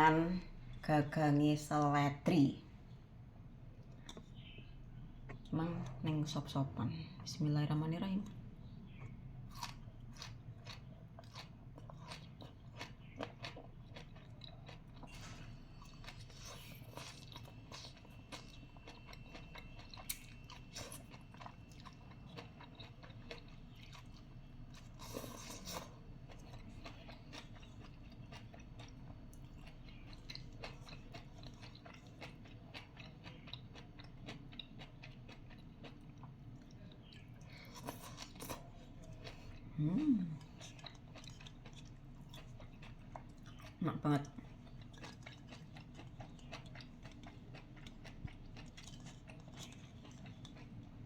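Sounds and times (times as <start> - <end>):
wet chewing: 8.2 - 51.0.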